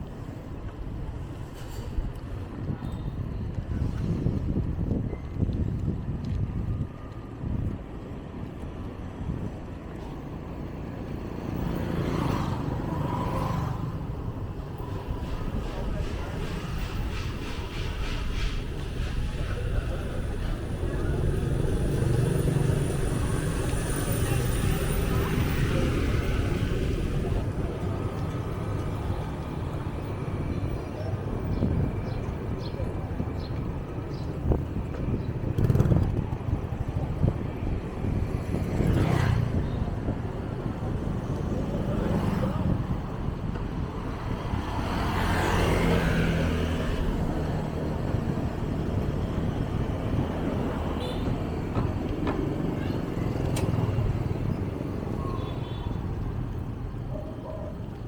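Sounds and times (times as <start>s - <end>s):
street traffic: 0.0s - 58.0s
people's voices: 14.8s - 34.7s
vehicle passing by: 38.1s - 39.6s, 44.2s - 51.0s.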